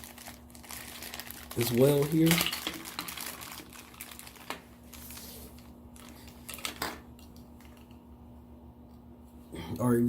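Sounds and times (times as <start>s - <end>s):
plastic rustling: 0.0s - 8.0s
faint steady hum: 0.0s - 10.0s.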